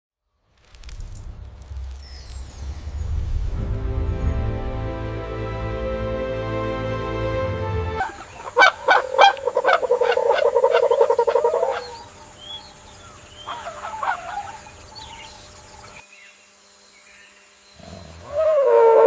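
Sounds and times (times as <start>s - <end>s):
bird honking calls: 8.0s - 15.3s.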